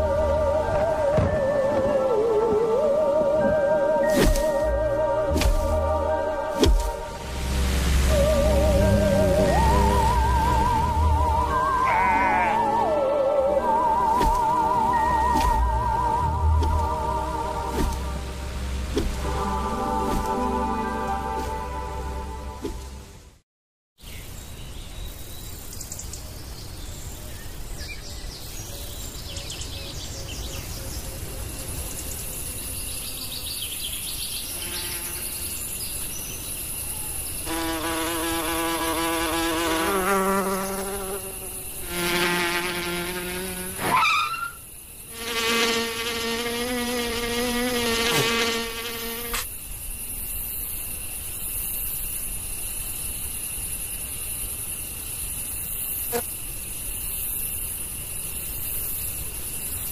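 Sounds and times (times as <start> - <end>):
cartoon insect wing buzzes: 8.1 - 13.5, 37.4 - 49.5.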